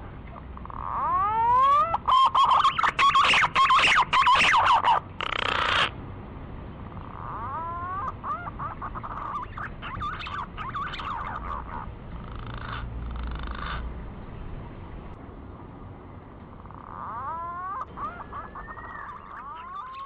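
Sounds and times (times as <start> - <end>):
harsh bird call: 0.6 - 5.9, 16.6 - 20.0
pigeon whistling song: 0.7 - 5.9, 7.3 - 11.8, 16.8 - 20.0.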